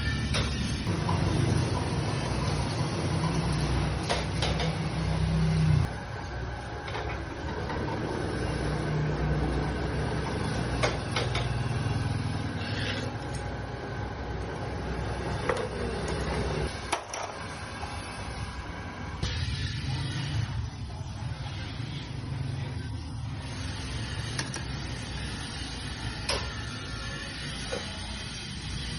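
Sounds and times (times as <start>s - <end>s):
metal lathe motor hum: 0.0s - 20.6s.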